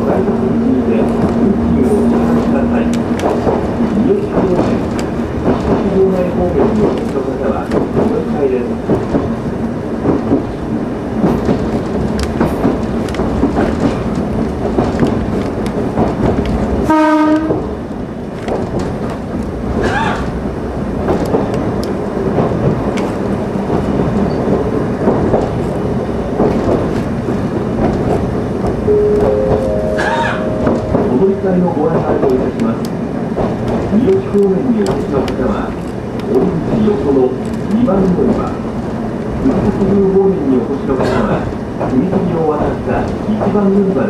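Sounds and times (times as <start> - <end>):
train rumble and rattle: 0.0 - 44.0
train horn blast: 16.8 - 17.6, 29.1 - 31.2.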